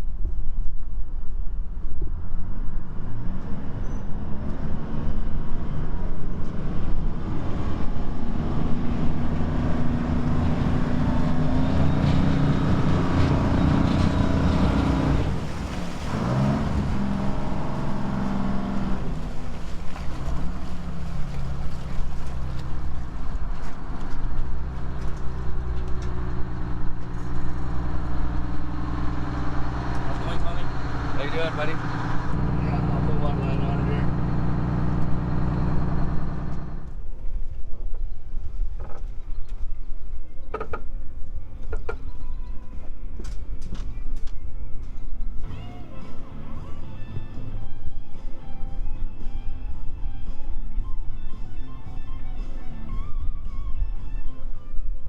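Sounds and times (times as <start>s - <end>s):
engine running: 2.2s - 37.3s, 45.4s - 53.1s.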